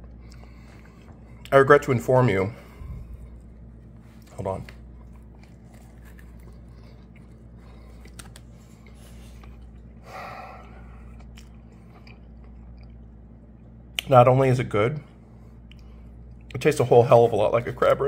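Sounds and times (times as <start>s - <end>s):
steady low hum: 0.0s - 18.0s
person chewing crunchy food: 2.9s - 13.8s.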